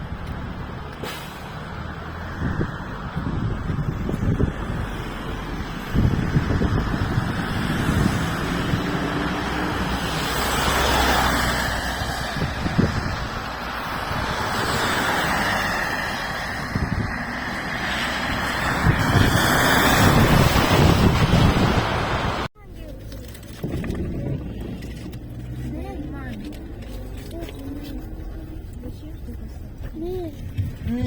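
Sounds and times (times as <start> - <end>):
car engine and road noise: 0.0 - 31.0.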